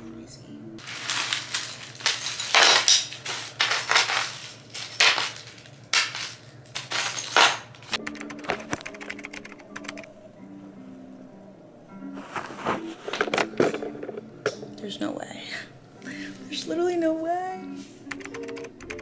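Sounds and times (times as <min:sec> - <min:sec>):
desk parts rattling and rustling: 0:00.8 - 0:08.0, 0:13.1 - 0:14.2
music with held notes: 0:15.7 - 0:19.0.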